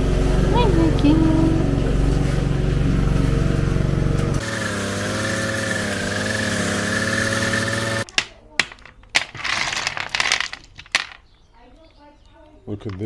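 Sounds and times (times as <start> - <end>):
lawn mower engine running: 0.0 - 8.1.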